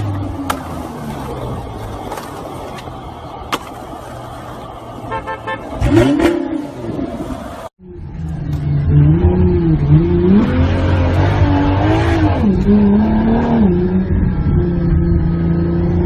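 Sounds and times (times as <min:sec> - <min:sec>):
car horn short toots: 0:05.1 - 0:06.3.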